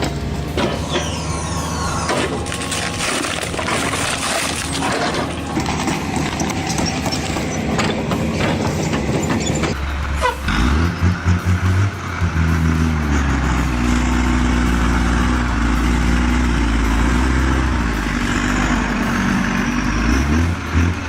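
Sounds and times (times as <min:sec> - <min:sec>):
machine engine humming: 0:00.0 - 0:21.0
cracking and knocking clatter: 0:02.1 - 0:09.9.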